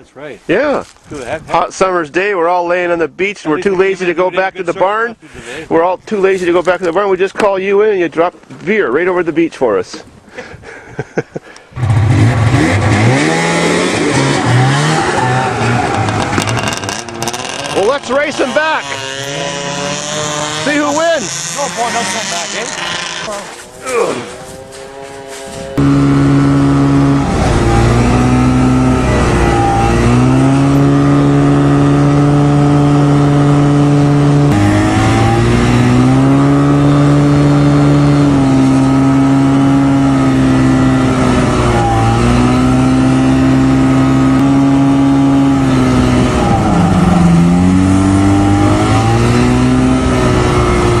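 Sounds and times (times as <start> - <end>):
engine revving: 11.8 - 51.0.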